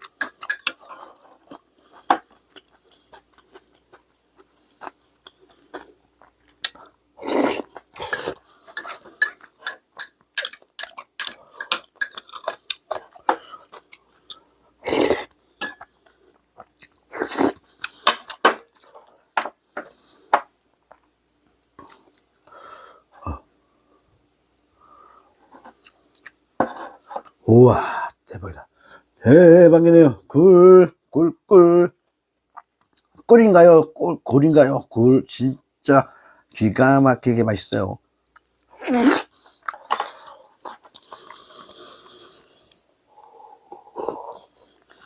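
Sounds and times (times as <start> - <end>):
person chewing: 0.0 - 20.2, 38.3 - 45.0
chewing and mouth sounds: 0.1 - 9.6.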